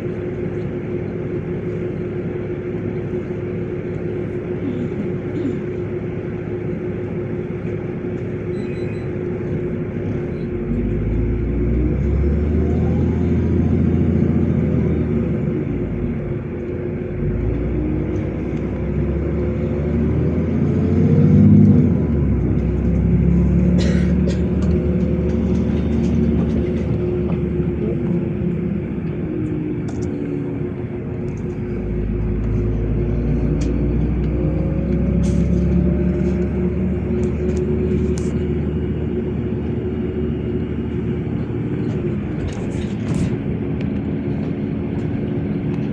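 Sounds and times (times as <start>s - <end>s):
bus engine whining: 0.0s - 45.9s.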